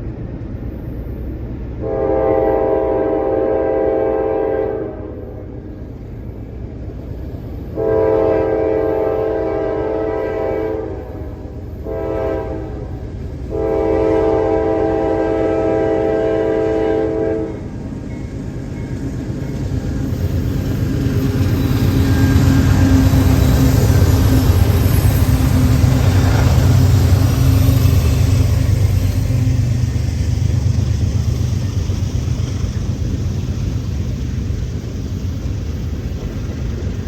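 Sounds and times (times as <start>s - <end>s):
locomotive rumble: 0.0s - 37.0s
locomotive air horn blasts: 1.8s - 5.6s, 7.8s - 17.7s.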